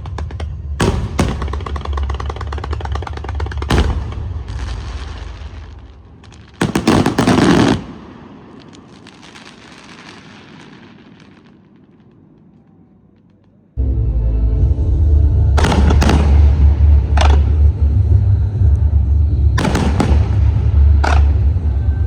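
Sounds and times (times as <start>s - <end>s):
music: 0.0s - 6.0s, 13.8s - 22.0s
fireworks bangs: 0.0s - 13.8s, 15.6s - 18.0s, 19.5s - 22.0s
fireworks crackling: 0.0s - 13.8s, 15.6s - 18.1s, 19.5s - 22.0s.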